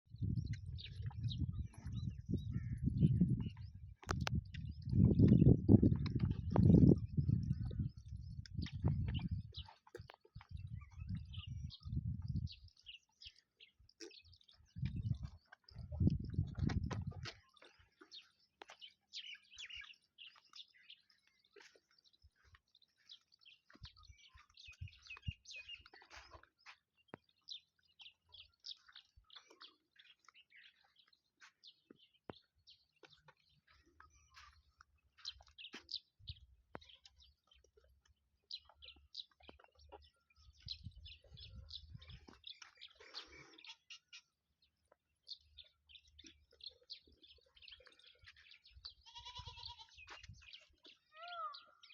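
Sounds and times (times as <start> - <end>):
small birds chirping: 0.0 - 51.9
soft low thumps: 0.2 - 9.6.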